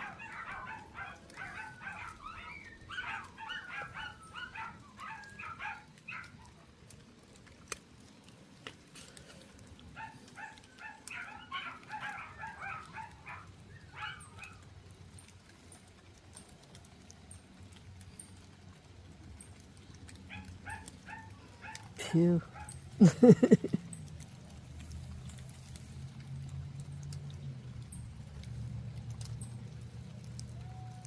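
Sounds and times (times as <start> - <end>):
animal high-pitched calls: 0.0 - 6.6, 10.0 - 14.7.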